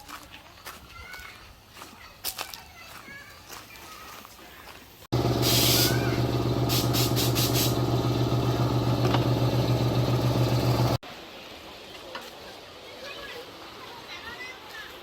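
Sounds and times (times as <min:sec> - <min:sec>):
motor humming: 0:05.1 - 0:11.0
hissing bursts: 0:05.2 - 0:10.9.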